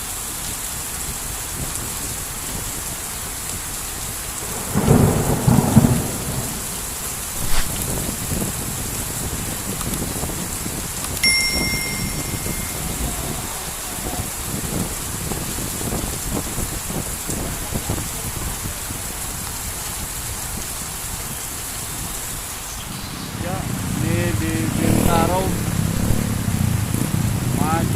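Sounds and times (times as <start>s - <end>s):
heavy rain falling: 0.0s - 27.9s
short bright ping: 11.2s - 13.0s
low buffeting: 22.9s - 27.6s.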